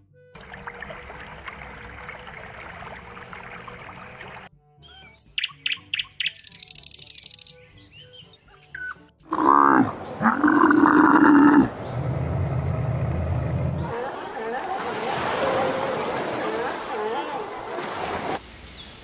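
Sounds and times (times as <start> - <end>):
bird chirping: 4.0 - 9.0
bird buzzing trill: 5.4 - 7.8
camel bellowing: 9.3 - 11.8
low rumble: 11.7 - 13.8.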